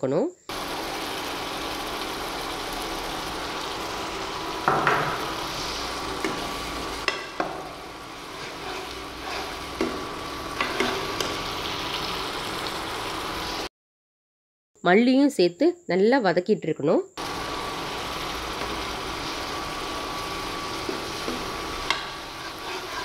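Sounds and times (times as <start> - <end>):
paste sizzling in hot oil: 0.5 - 13.7, 17.2 - 23.0
metal ladle scraping and tapping pan: 6.2 - 7.6, 10.6 - 11.4, 20.9 - 23.0.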